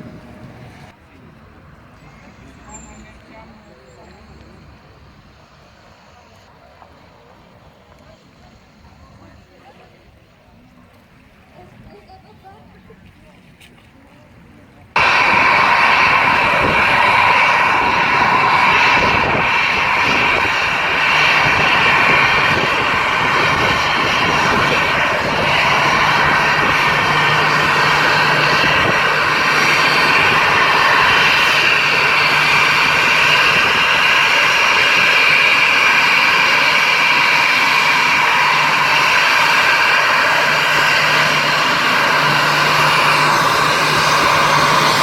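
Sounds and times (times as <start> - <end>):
jet engines at high thrust: 0.0 - 10.4, 14.9 - 45.0
low hum: 15.0 - 45.0.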